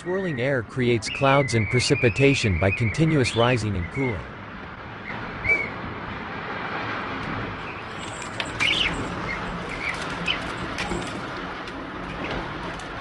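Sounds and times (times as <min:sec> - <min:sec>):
birds chirping: 0:00.0 - 0:04.3, 0:05.0 - 0:05.8, 0:07.6 - 0:11.0
steady rushing noise: 0:00.0 - 0:13.0.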